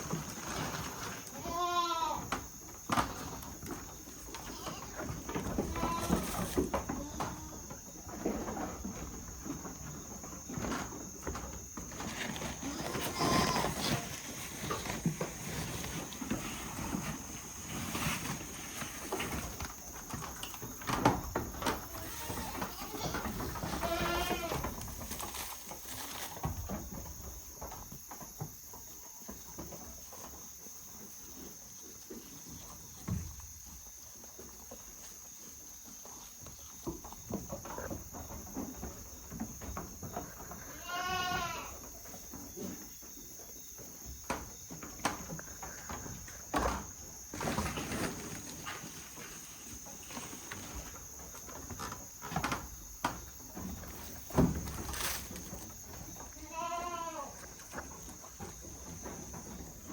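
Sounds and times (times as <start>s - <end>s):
goats bleating: 1.4s - 2.2s, 21.9s - 24.6s, 40.7s - 41.7s, 56.4s - 57.4s.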